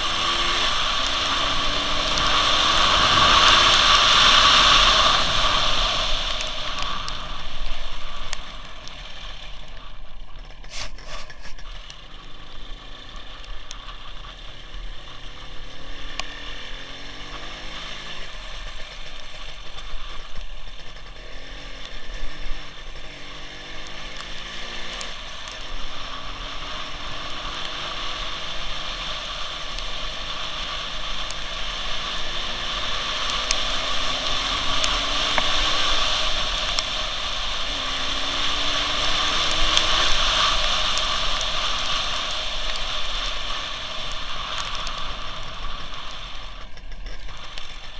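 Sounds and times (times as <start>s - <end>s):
loud rushing noise: 0.0s - 9.6s
motorcycle engine: 0.0s - 47.9s.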